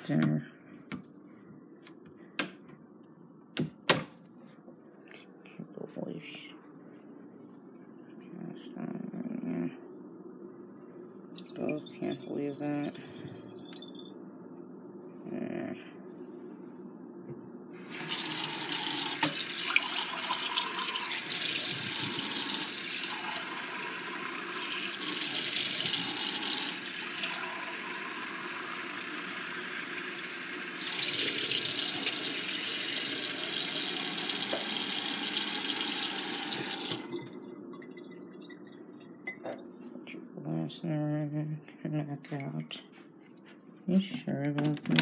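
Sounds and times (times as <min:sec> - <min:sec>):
tap water running into sink: 0:17.9 - 0:37.4.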